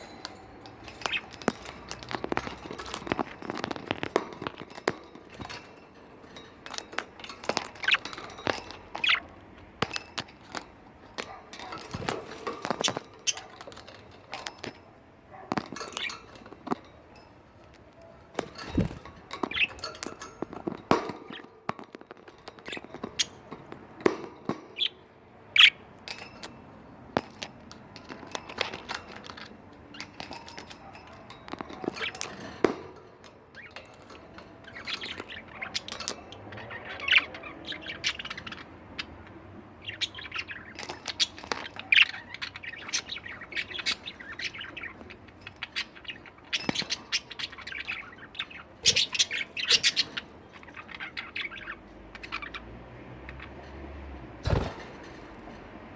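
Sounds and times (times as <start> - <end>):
budgerigars chirping: 0.9 - 4.2, 7.7 - 9.3, 24.8 - 25.9, 34.5 - 53.6.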